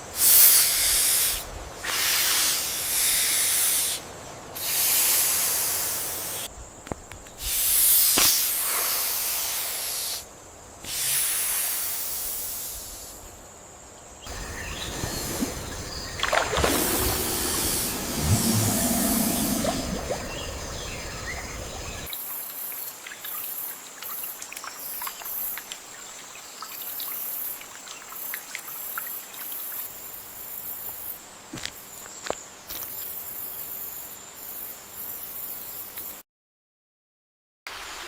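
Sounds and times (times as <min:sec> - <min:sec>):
steady high whine: 0:16.3 - 0:22.1
low rumble: 0:16.5 - 0:22.1.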